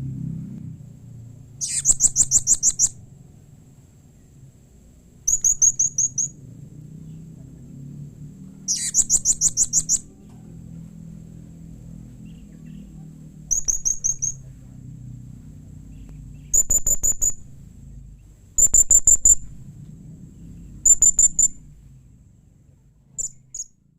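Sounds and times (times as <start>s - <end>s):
faint low hum: 0.0s - 23.9s
parrot chirping: 1.5s - 3.0s, 5.3s - 6.4s, 8.6s - 10.1s, 13.5s - 14.5s, 16.4s - 17.5s, 18.6s - 19.5s, 20.8s - 21.6s, 23.2s - 23.8s.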